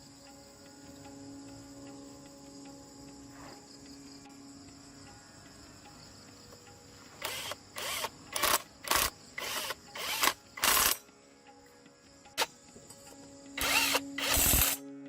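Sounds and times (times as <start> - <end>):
insects buzzing: 0.0 - 15.0
sharp mechanical tool bursts: 7.2 - 11.0, 12.4 - 12.6, 13.6 - 14.8.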